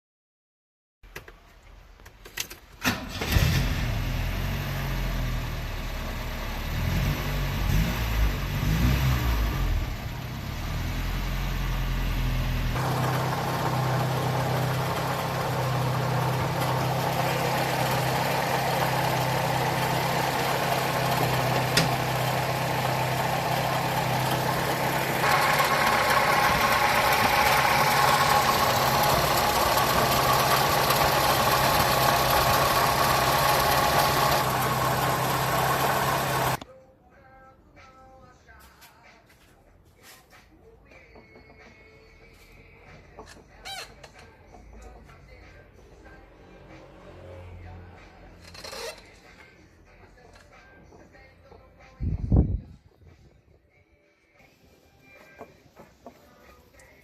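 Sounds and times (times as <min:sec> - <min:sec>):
car engine idling rough: 0:12.6 - 0:36.6.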